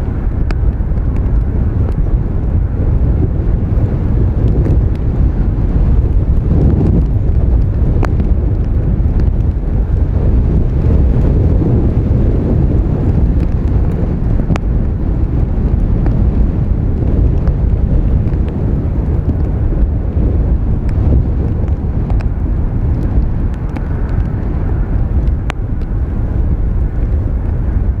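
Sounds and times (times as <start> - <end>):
gusty wind buffeting microphone: 0.0 - 28.0.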